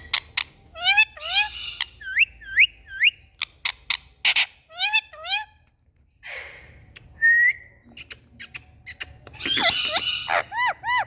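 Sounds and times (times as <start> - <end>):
parakeet chirping: 0.0 - 5.6, 8.0 - 11.0.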